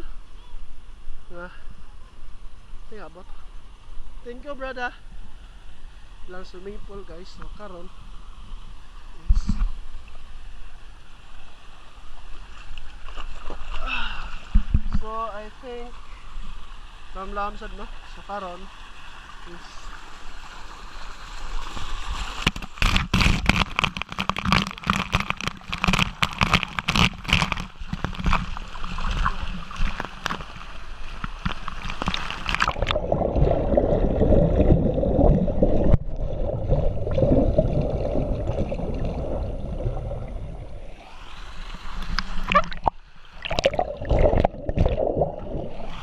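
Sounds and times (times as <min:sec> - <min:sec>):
pool water splashing: 0:06.9 - 0:46.0
muffled underwater churning: 0:22.6 - 0:46.0.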